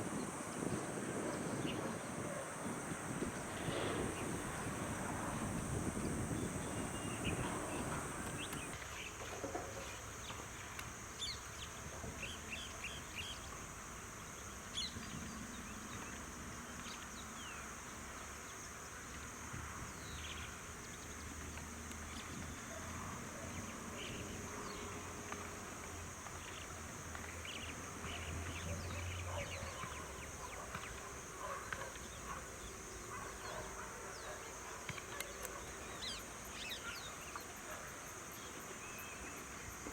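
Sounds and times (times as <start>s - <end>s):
birds chirping: 0.0s - 8.8s
insect drone: 0.0s - 39.9s.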